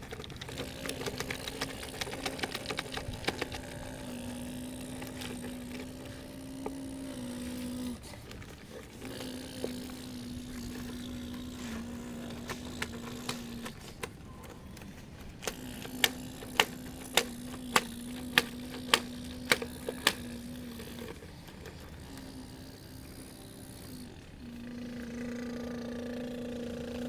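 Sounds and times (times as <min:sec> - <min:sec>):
sharp clicks: 0:00.0 - 0:23.2
electric motor whining: 0:00.0 - 0:27.0.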